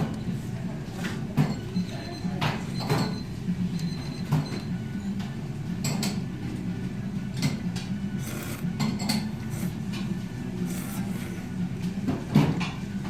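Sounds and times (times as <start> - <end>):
dishes and cutlery clinking: 1.0 - 3.2, 4.1 - 6.2, 8.2 - 10.0.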